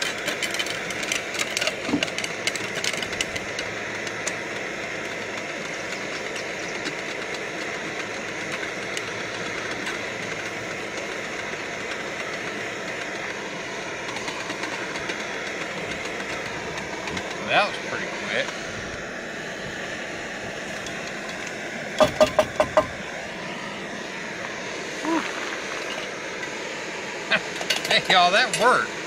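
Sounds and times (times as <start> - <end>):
popcorn popping in metal cup: 0.0 - 19.2, 19.9 - 23.2
stove burner hissing: 0.0 - 29.0.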